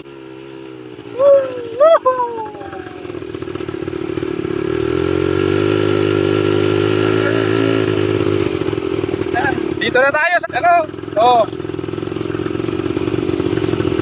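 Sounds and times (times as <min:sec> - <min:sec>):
quad bike engine revving: 0:00.0 - 0:14.0
person yelling: 0:01.1 - 0:03.2, 0:07.2 - 0:07.8.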